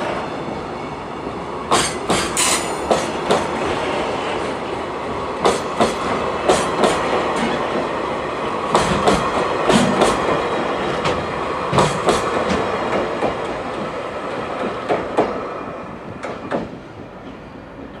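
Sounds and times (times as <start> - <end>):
train rumble: 0.0 - 18.0
train wheels clacking over rail joints: 1.7 - 3.6, 5.4 - 7.6, 8.7 - 13.6.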